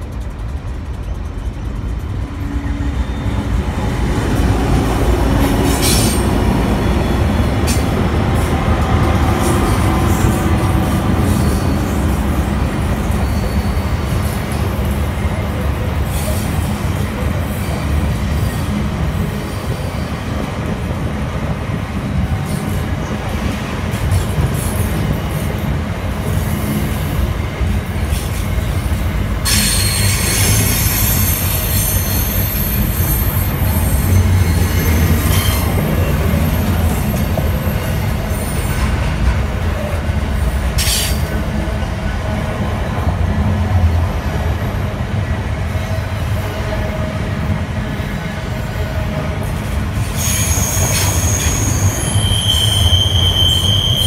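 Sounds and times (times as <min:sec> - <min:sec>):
freight train rumbling over rails: 0:00.0 - 0:54.0
high steel-wheel squeal: 0:01.0 - 0:04.0, 0:05.6 - 0:08.6, 0:09.2 - 0:20.5, 0:24.0 - 0:41.6, 0:48.1 - 0:54.0.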